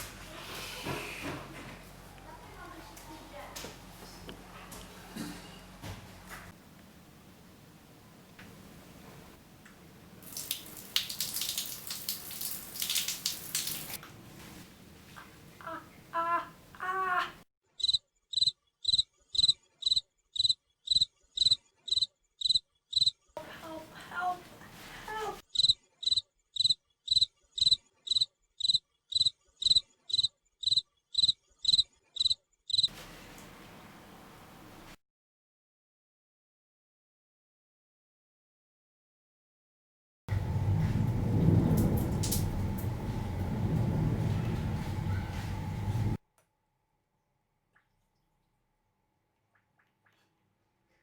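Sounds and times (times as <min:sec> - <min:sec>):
tap water running and splashing: 0:09.6 - 0:14.5, 0:40.3 - 0:46.2
cricket chirping: 0:17.8 - 0:23.1, 0:25.6 - 0:32.9.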